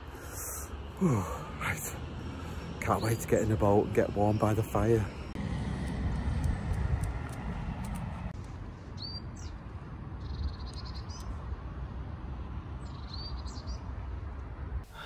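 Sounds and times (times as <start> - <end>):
small songbirds chirping: 0.2 - 5.4, 8.8 - 11.5, 12.7 - 14.1.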